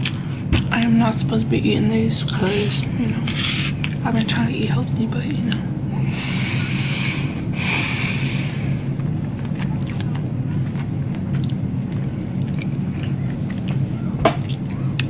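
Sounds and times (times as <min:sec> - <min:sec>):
steady low hum: 0:00.0 - 0:15.0
person chewing with wet mouth clicks: 0:09.5 - 0:13.8.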